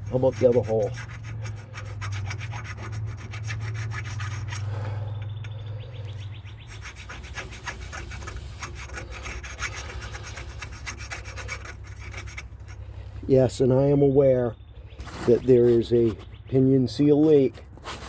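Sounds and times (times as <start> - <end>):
steady low hum: 0.0 - 15.6
hand scraping metal: 0.0 - 18.0.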